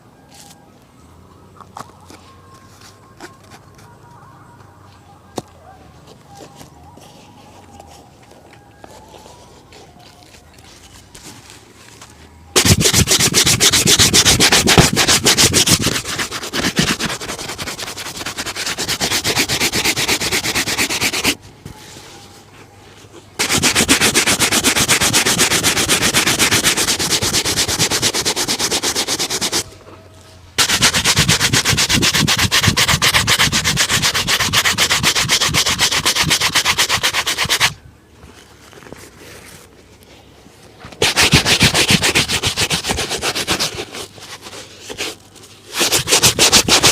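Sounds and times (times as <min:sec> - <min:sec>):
brush on leather shoe: 0:12.6 - 0:21.4, 0:23.4 - 0:29.7, 0:30.6 - 0:37.8, 0:41.0 - 0:46.9.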